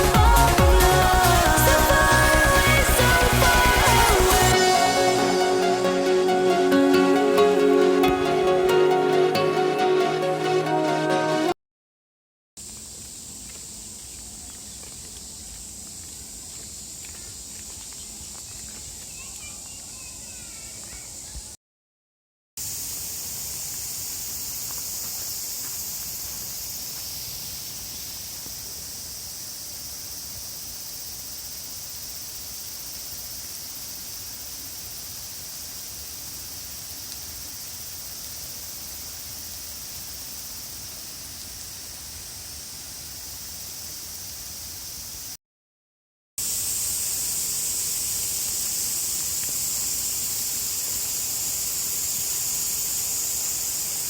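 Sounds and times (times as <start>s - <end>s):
heavy rain hissing: 0.0s - 9.2s, 46.4s - 54.0s.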